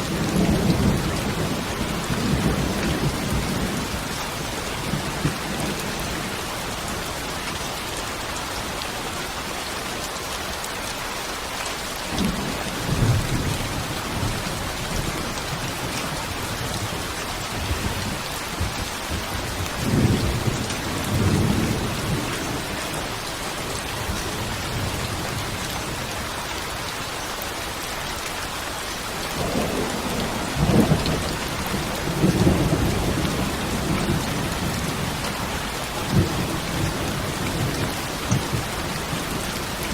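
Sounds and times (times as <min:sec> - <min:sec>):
low thunder rumbling: 0:00.0 - 0:06.5, 0:29.4 - 0:39.9
heavy rain falling: 0:00.0 - 0:39.9.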